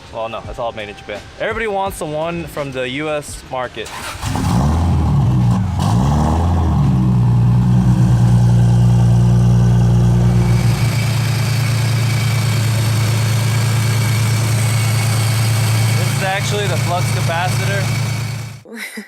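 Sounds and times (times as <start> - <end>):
car engine idling: 3.9 - 18.6.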